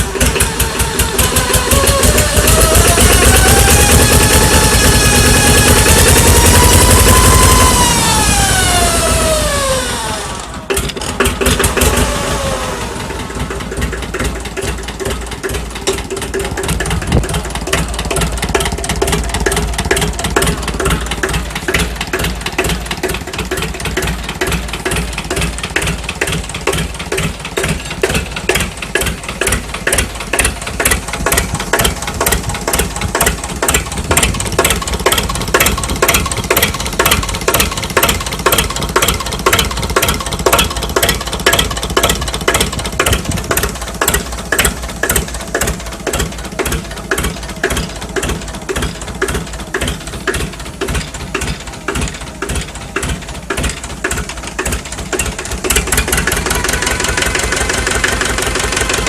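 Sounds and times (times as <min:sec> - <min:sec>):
small tractor engine idling: 0:00.0 - 0:59.0.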